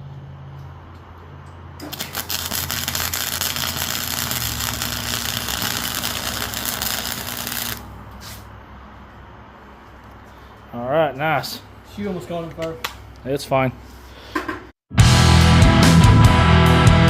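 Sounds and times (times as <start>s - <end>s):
welding arc crackling: 1.8s - 7.9s.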